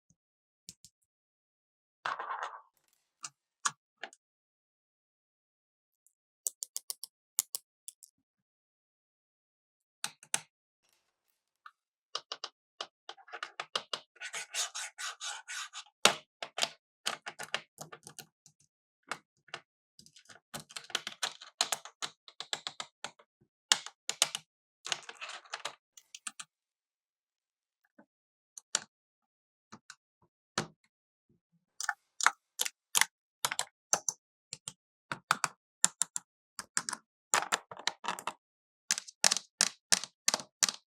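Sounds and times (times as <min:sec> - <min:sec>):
plastic toy clicks and taps: 0:31.8 - 0:38.3, 0:38.9 - 0:40.8.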